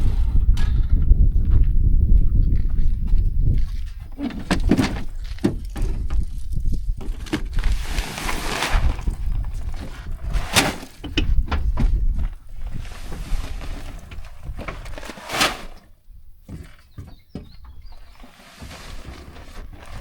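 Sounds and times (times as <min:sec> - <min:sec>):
wind rumble on microphone: 0:00.0 - 0:15.0
knocks and thuds: 0:04.2 - 0:06.2, 0:16.4 - 0:19.1.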